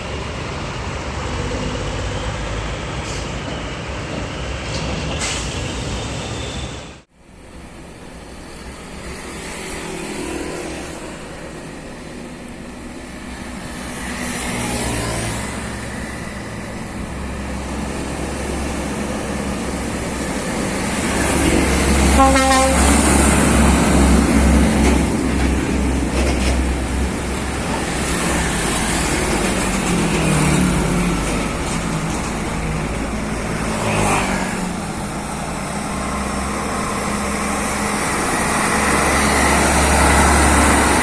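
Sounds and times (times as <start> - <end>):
diesel truck passing: 13.7 - 41.0
truck horn blast: 22.1 - 23.0.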